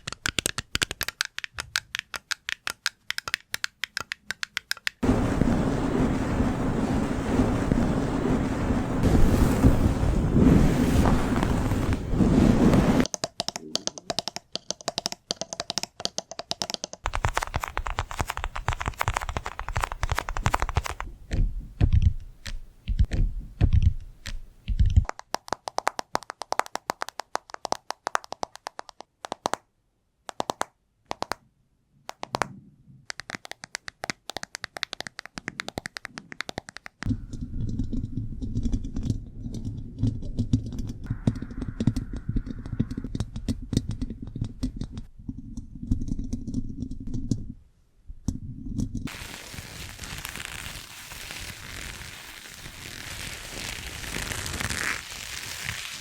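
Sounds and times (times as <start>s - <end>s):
rapid tapping and clicking: 0.0s - 5.0s, 13.0s - 29.6s, 33.1s - 37.2s
scratching or rubbing: 5.0s - 13.1s, 17.0s - 25.1s, 49.0s - 56.0s.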